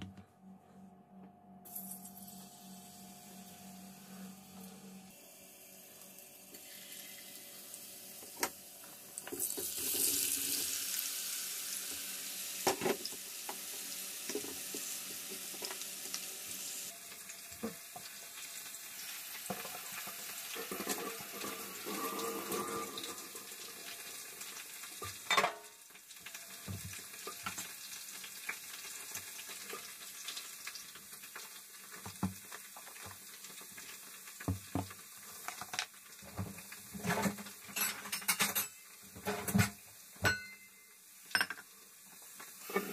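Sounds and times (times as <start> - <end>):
utensils and dishes clinking: 19.5 - 23.4, 25.2 - 25.7, 37.0 - 41.7.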